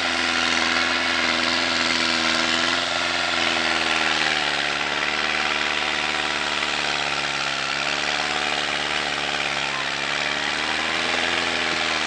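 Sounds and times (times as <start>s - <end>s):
heavy vehicle engine running: 0.0s - 12.0s.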